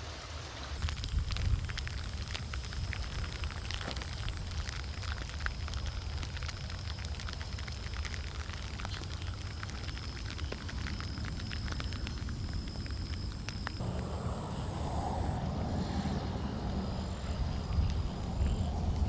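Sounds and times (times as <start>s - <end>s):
raindrops pattering: 0.0s - 15.0s, 17.0s - 19.0s
low steady rumble: 11.2s - 19.0s.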